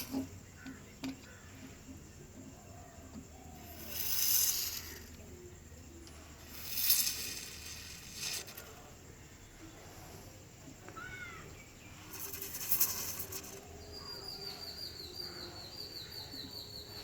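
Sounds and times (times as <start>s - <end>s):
hissing rushes: 3.6s - 5.2s, 6.1s - 8.9s, 12.0s - 13.6s.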